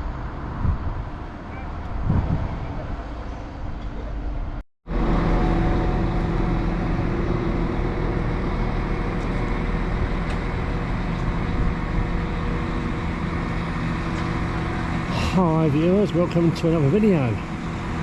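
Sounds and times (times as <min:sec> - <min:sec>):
diesel train engine rumbling: 0:00.0 - 0:18.0.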